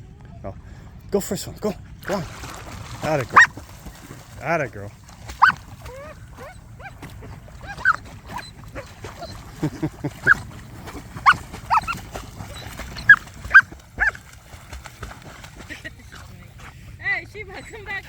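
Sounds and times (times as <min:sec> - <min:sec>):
dog whining and yipping: 0:03.3 - 0:03.5, 0:05.4 - 0:09.4, 0:10.2 - 0:14.2.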